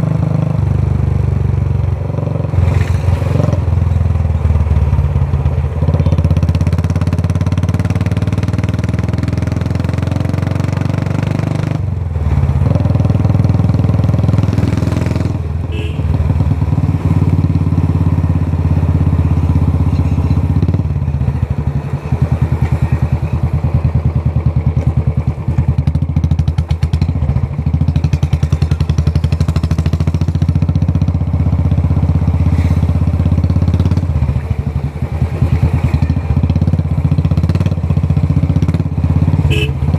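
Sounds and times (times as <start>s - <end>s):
motorcycle exhaust beat: 12.6s - 34.3s, 36.0s - 39.9s.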